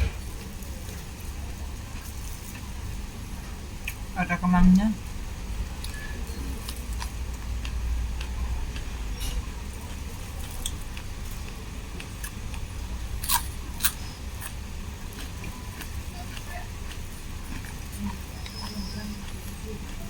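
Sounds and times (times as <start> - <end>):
low steady rumble: 0.0 - 20.0
person chewing: 5.8 - 20.0
crisp clicks and crunches: 6.6 - 18.6.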